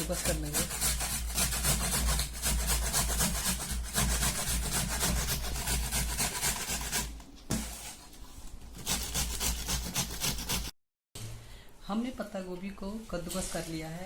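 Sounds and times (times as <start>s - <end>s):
cabbage rasping on a grater: 0.0s - 8.0s, 8.8s - 10.7s.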